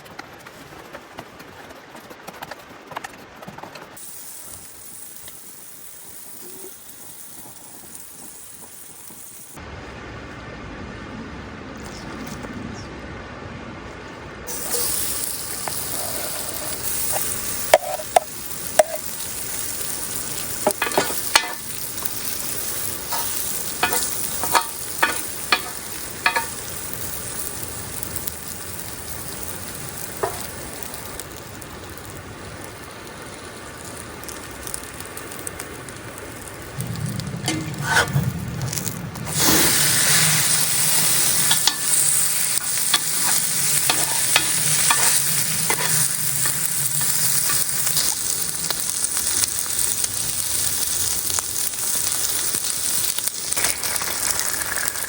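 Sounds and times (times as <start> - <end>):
wood fire crackling: 0.0 - 9.6, 14.5 - 55.0
sharp pops of burning wood: 14.5 - 37.8, 38.6 - 55.0.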